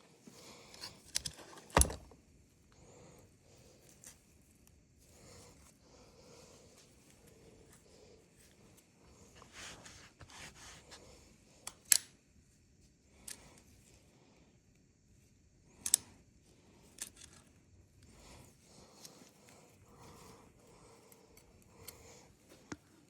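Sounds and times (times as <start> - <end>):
sharp clicks of small parts: 0.7 - 2.0, 11.6 - 12.2, 15.7 - 16.2, 17.0 - 17.5
light rustling and scraping: 6.4 - 11.2.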